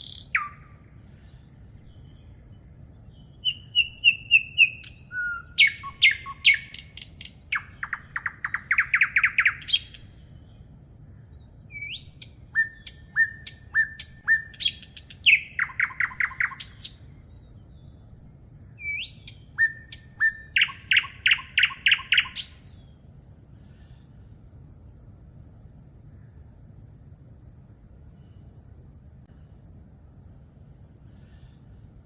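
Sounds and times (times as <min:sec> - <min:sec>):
songbird singing with trill: 0:00.0 - 0:23.0.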